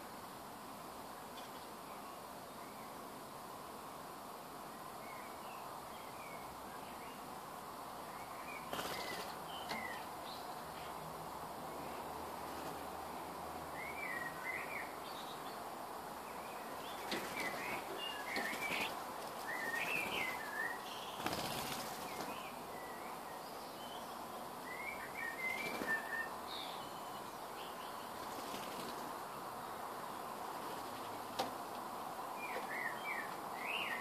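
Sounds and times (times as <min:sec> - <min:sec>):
garden birds chirping: 0:00.0 - 0:34.0
wings fluttering: 0:08.6 - 0:10.0, 0:16.8 - 0:22.5, 0:25.3 - 0:26.3, 0:28.1 - 0:29.2, 0:30.4 - 0:31.6.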